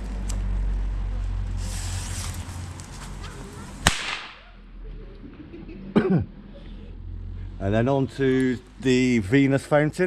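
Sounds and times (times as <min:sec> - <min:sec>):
firecracker fizzing hiss: 0:01.5 - 0:02.8, 0:03.8 - 0:04.3
firecracker bang: 0:03.8 - 0:04.4.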